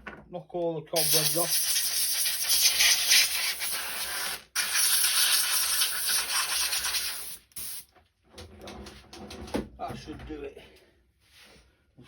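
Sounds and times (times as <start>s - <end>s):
air blow gun hissing: 1.0s - 7.9s.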